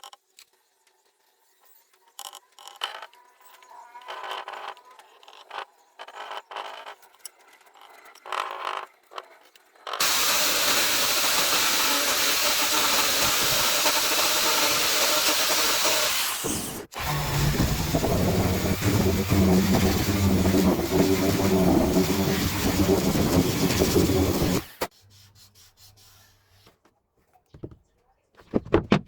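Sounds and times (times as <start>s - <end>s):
power tool running with hiss: 10.0s - 24.9s
scraping and handling of wood: 28.4s - 29.0s.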